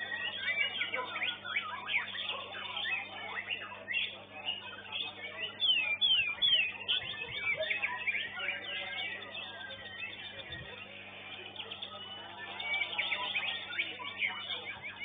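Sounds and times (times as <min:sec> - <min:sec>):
electrical hum: 0:00.0 - 0:15.0
songbirds chirping and whistling: 0:00.0 - 0:15.0.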